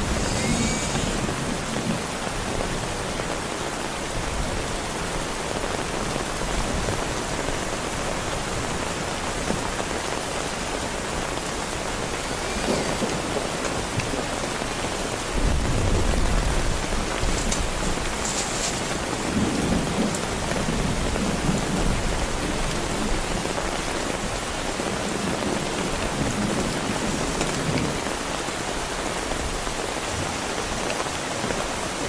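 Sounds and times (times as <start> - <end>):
thunder rumbling: 0.0 - 3.5, 10.3 - 28.4
heavy rain: 0.0 - 32.0.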